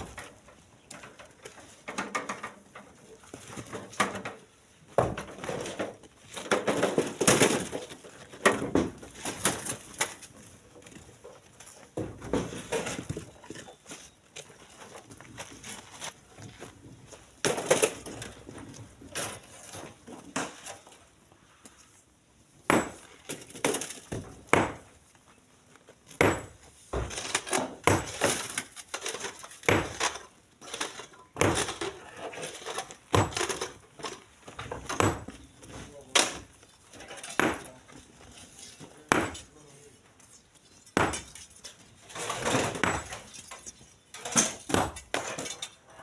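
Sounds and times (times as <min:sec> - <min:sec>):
stone chunks landing in truck bed: 0:03.5 - 0:10.3, 0:26.2 - 0:37.8, 0:41.0 - 0:41.4, 0:42.1 - 0:43.4, 0:44.2 - 0:45.6.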